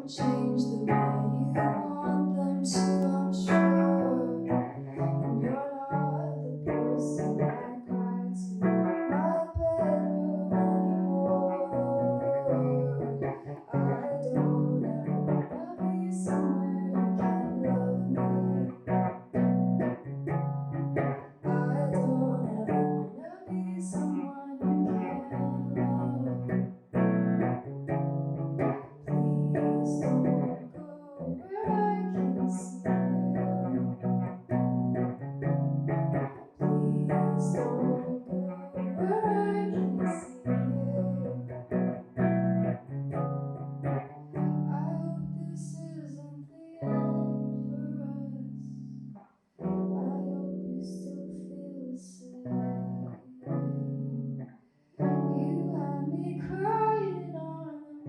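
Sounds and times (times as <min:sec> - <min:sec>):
guitar: 0:00.0 - 0:58.0
person singing: 0:00.0 - 0:58.0.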